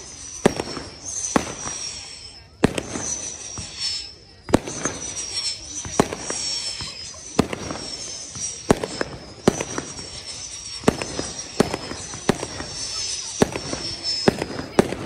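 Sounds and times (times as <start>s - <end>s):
fireworks bangs: 0.0s - 15.0s
fireworks crackle: 0.0s - 15.0s
thin high whistle: 0.0s - 15.0s.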